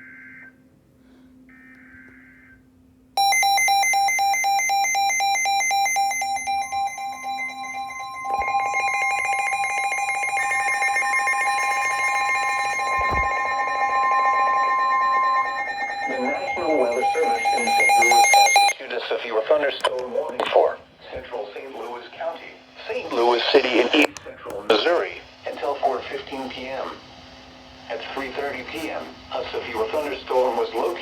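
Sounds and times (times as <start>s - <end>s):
pulsing electronic alarm: 3.2s - 18.8s
steady warning alert tone: 3.2s - 18.8s
weather radio data bursts: 5.6s - 31.0s.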